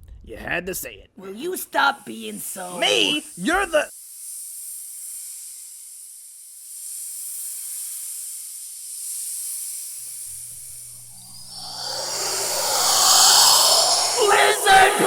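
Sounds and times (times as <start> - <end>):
steady hiss: 10.3 - 15.0.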